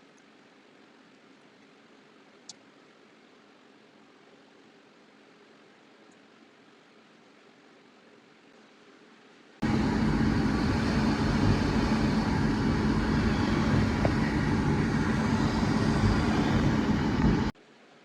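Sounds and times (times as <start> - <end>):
machine tool running: 9.6 - 17.6.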